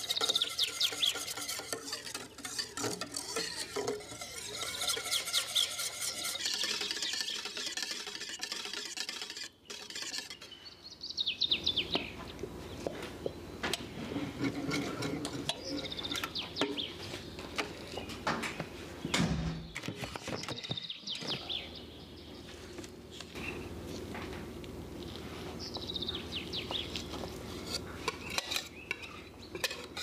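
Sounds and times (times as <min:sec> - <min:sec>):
small bird chirping: 0:00.0 - 0:01.4, 0:09.6 - 0:12.4
metal whisk knocking on pot: 0:00.0 - 0:10.3.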